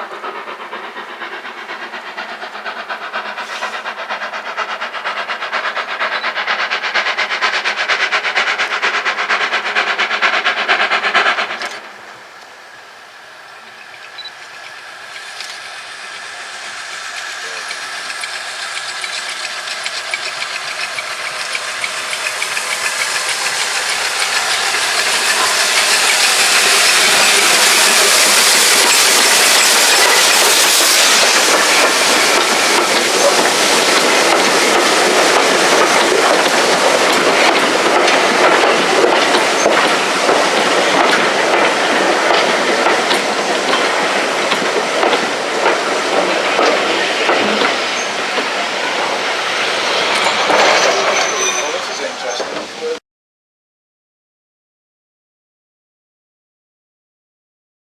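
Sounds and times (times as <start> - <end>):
steam train passing: 0.0 - 53.0
wheels knocking: 14.0 - 52.8.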